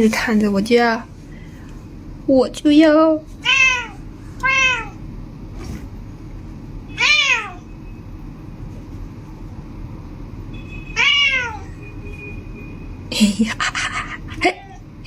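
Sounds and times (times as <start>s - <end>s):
cat meowing: 3.4s - 5.0s, 6.9s - 7.7s, 10.9s - 11.8s.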